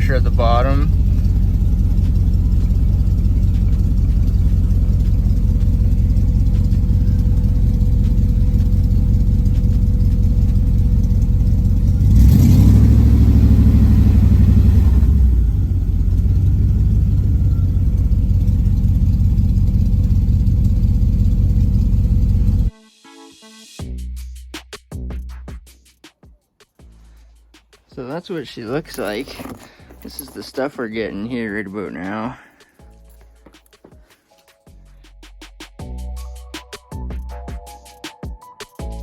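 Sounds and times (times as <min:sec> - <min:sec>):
car engine idling and revving: 0:00.0 - 0:22.7, 0:28.4 - 0:31.7.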